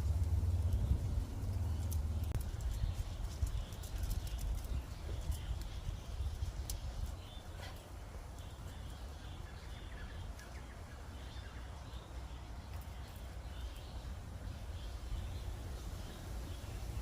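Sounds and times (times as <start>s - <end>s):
low rumble: 0.0s - 3.4s
faint birds chirping: 0.0s - 17.0s.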